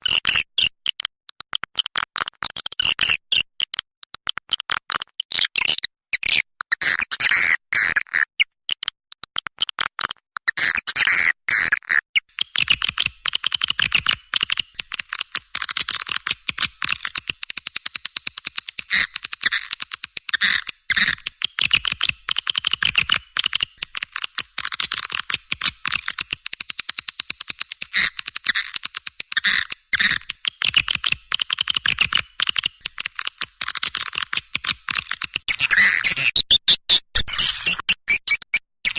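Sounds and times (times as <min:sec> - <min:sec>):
rapid high bird chirps: 0:27.5 - 0:38.9.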